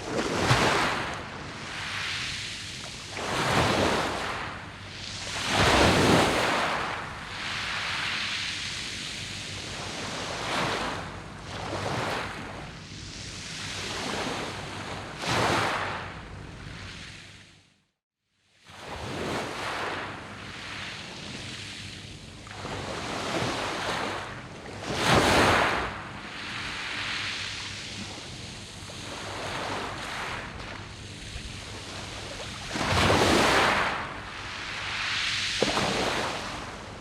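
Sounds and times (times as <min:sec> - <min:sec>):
waves breaking on pebble beach: 0:00.0 - 0:04.6, 0:05.2 - 0:08.6, 0:24.8 - 0:28.0, 0:29.0 - 0:37.0.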